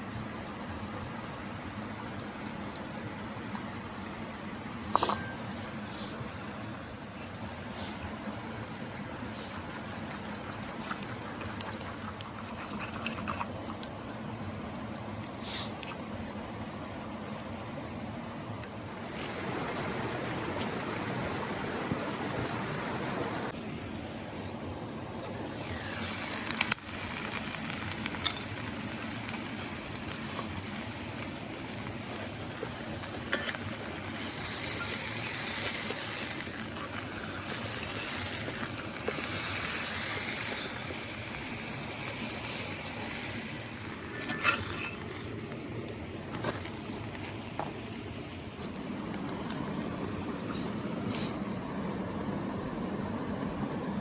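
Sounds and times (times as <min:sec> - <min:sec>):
meat sizzling in a pan: 0:25.3 - 0:45.4.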